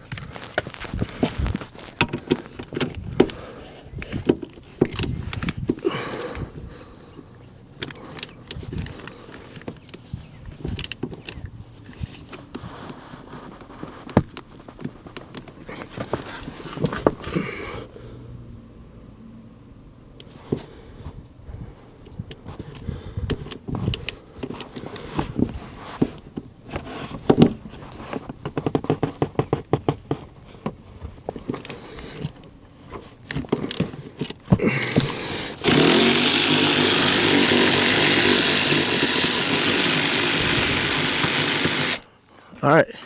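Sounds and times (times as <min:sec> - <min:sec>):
impact wrench running: 0:00.0 - 0:02.5, 0:34.6 - 0:42.1.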